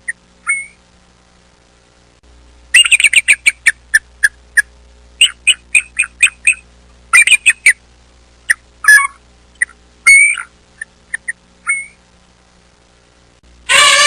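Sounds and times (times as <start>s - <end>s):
bird calling: 0.0s - 0.8s, 2.8s - 7.8s, 8.5s - 12.0s.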